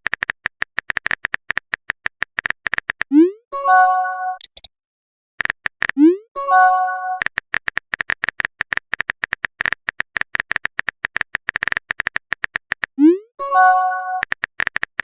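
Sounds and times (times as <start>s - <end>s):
phone keyboard typing clicks: 0.0s - 3.1s, 4.4s - 4.7s, 5.4s - 6.0s, 7.2s - 13.0s, 14.2s - 15.0s.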